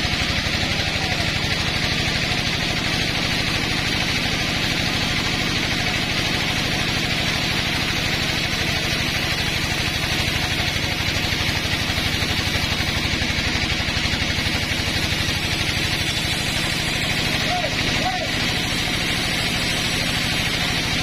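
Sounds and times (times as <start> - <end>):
sawmill engine throbbing: 0.0 - 21.0.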